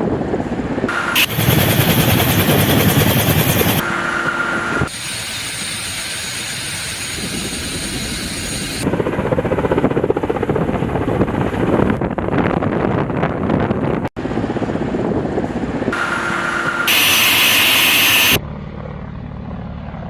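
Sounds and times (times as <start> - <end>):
helicopter rotor chop: 0.1 - 20.0
turbine whine: 0.4 - 10.6, 14.2 - 20.0
hiss: 1.2 - 3.8, 4.9 - 8.8, 16.9 - 18.4.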